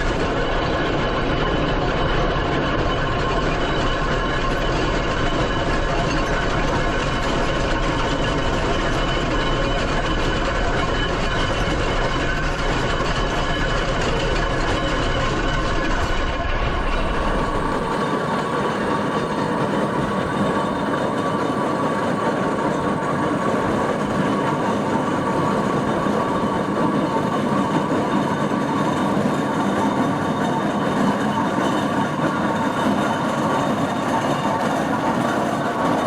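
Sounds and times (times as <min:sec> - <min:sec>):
steam traction engine running: 0:16.5 - 0:36.0.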